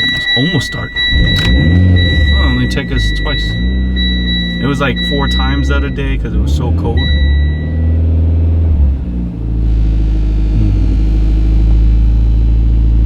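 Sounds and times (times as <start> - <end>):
steady electronic beep: 0.0 - 8.2
car engine idling: 0.0 - 13.0.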